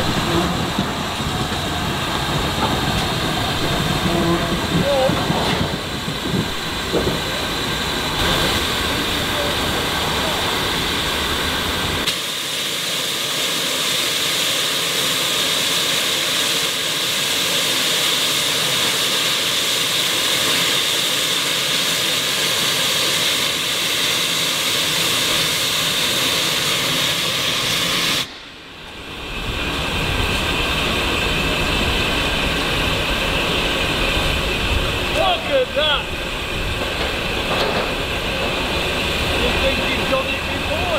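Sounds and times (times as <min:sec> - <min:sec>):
low rumbling: 0:00.0 - 0:12.1, 0:28.2 - 0:40.9
steam engine hissing: 0:00.0 - 0:40.9.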